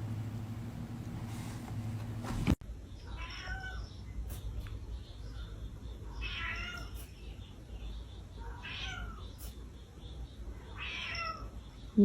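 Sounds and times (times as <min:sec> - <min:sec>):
cat meowing: 0:03.1 - 0:03.9, 0:06.2 - 0:07.1, 0:08.4 - 0:09.3, 0:10.7 - 0:11.5.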